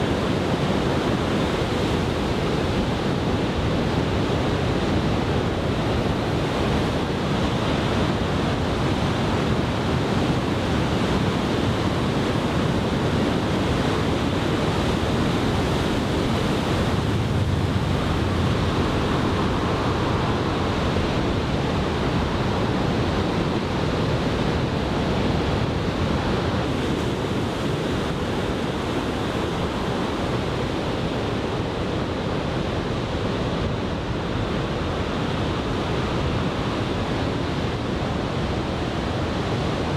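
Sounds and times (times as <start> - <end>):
wind on microphone: 0.0 - 35.1
surf washing on sandy beach: 0.0 - 39.9.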